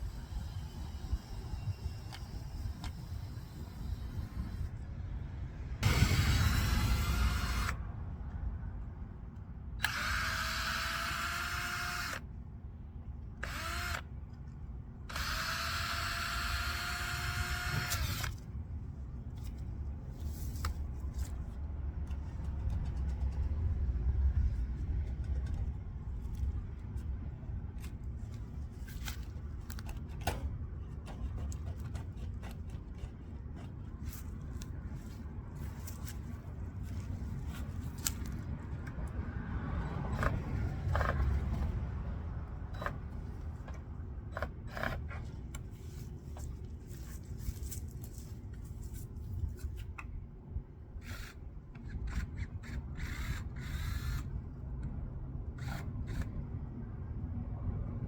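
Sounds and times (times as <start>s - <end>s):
cordless drill whining: 5.8s - 7.8s, 9.8s - 12.2s, 13.4s - 14.1s, 15.1s - 18.4s, 51.0s - 54.3s.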